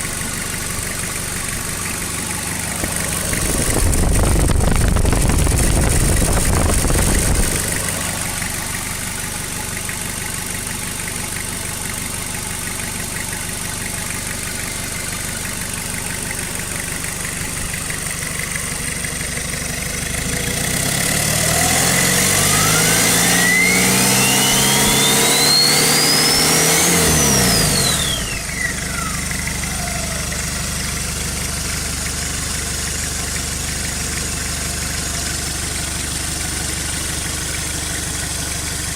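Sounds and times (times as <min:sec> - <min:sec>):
turbo whine: 0:00.0 - 0:09.3, 0:21.7 - 0:31.3
diesel engine idling and revving: 0:00.0 - 0:38.9.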